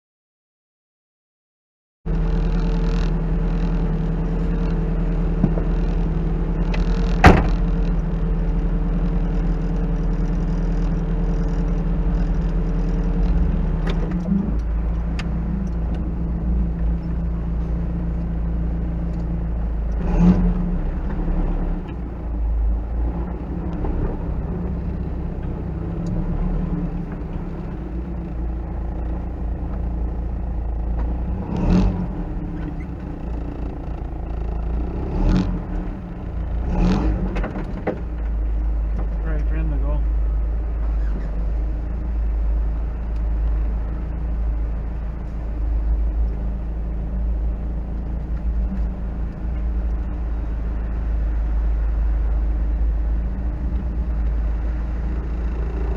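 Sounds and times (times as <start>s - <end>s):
truck engine running at low speed: 2.1s - 55.9s
dull thumps: 4.5s - 8.6s.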